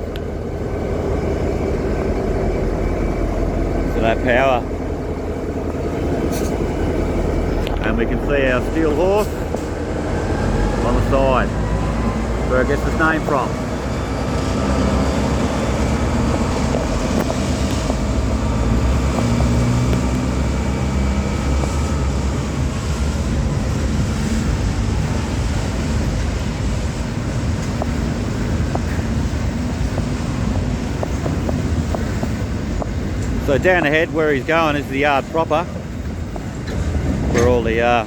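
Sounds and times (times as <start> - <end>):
diesel locomotive engine drone: 0.0 - 38.0
wind on microphone: 13.4 - 38.0.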